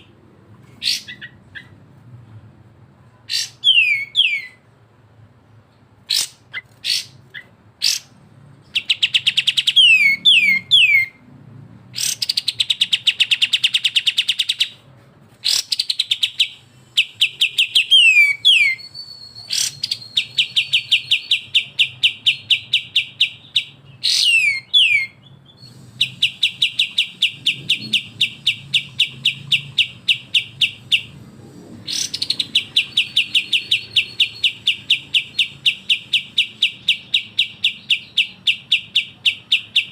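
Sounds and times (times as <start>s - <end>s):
bird chattering song: 0.0s - 1.8s, 3.3s - 4.6s, 5.7s - 11.2s, 12.0s - 14.8s, 15.4s - 39.9s
bird downslurred whistles: 15.5s - 31.1s.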